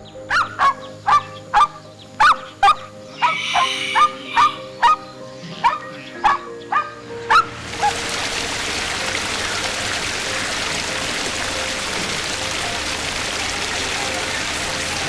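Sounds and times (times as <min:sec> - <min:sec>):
steady hissing noise: 0:03.0 - 0:05.5.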